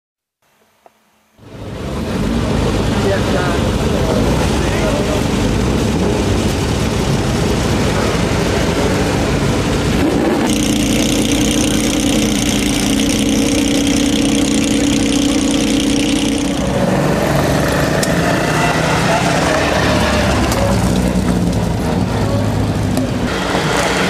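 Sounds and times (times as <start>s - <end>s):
rally car engines running: 1.4s - 24.0s
car idling drone: 9.2s - 22.5s.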